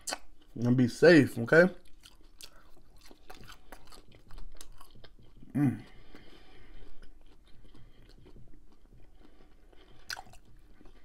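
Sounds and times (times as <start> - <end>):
wet mouth clicks: 0.0 - 0.3
person chewing food: 1.8 - 11.0
closed-mouth hum: 5.4 - 6.0.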